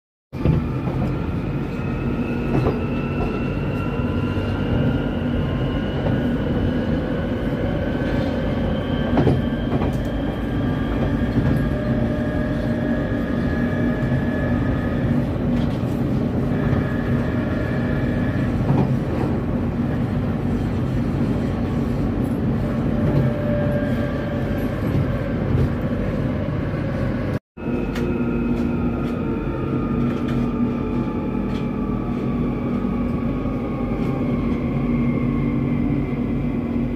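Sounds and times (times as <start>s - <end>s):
train wheels rumbling on rail: 0.3s - 36.9s.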